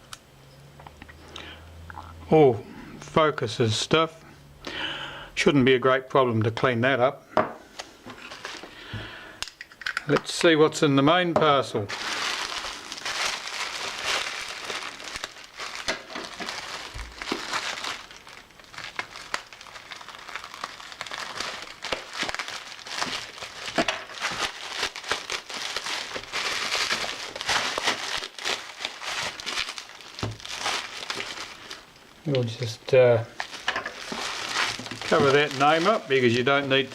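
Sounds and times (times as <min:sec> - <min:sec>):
packaging crinkling and rustling: 0:07.7 - 0:08.9, 0:11.5 - 0:36.9.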